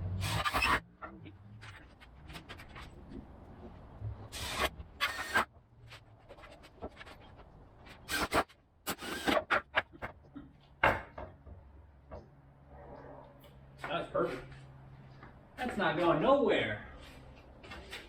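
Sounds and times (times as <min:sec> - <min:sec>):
cordless drill driving screws: 0:00.2 - 0:00.8, 0:04.4 - 0:05.4, 0:08.1 - 0:09.6
screws grinding into wood: 0:00.2 - 0:00.8, 0:04.4 - 0:05.5, 0:08.1 - 0:09.7.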